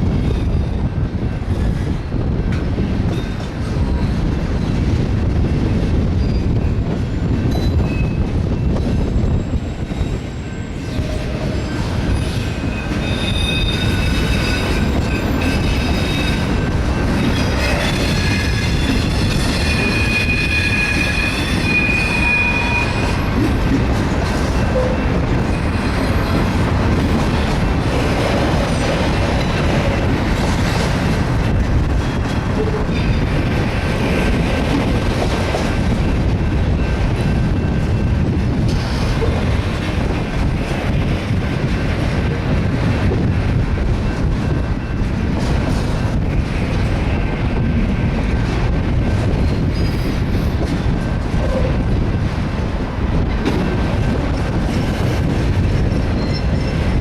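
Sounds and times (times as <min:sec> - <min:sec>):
train wheels rumbling on rail: 0:00.0 - 0:57.0
high wheel squeal: 0:09.2 - 0:31.1.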